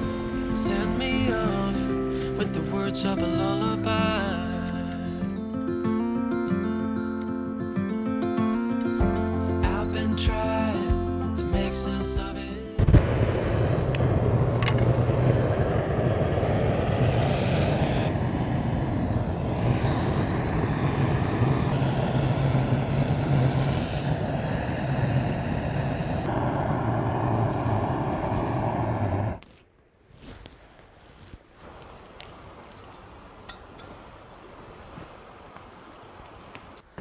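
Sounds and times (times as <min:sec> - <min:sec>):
vehicle engine humming: 0:00.0 - 0:29.4.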